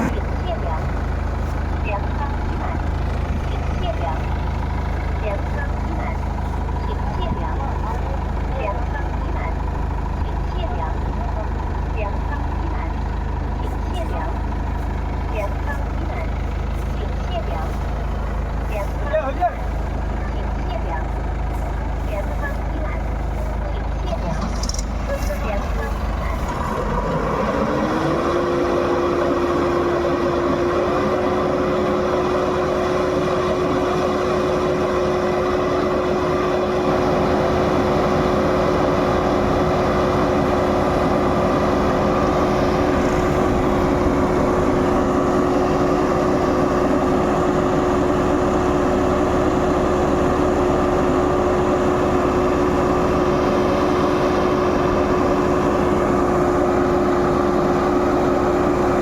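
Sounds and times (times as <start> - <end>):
heavy diesel engine revving: 0.0 - 59.0.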